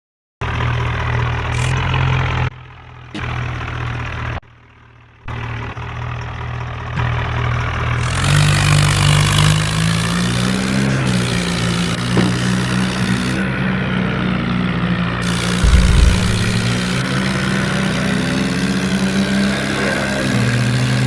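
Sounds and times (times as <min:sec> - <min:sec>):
tractor engine running: 0:07.2 - 0:21.0.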